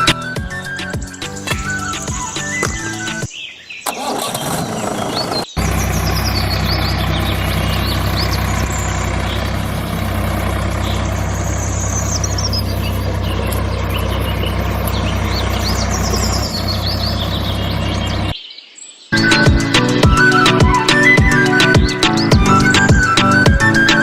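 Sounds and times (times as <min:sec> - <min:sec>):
birds chirping: 0:00.0 - 0:24.0
engine idling: 0:04.0 - 0:18.3.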